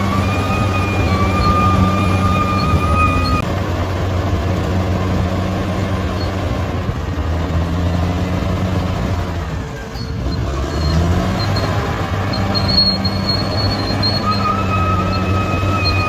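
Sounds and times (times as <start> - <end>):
bulldozer diesel engine running: 0.0 - 16.0.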